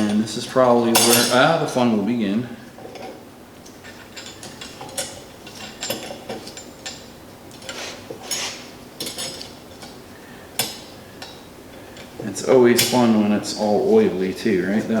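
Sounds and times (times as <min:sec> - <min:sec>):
metal parts clicking and clinking: 0:00.9 - 0:01.5, 0:03.8 - 0:09.6.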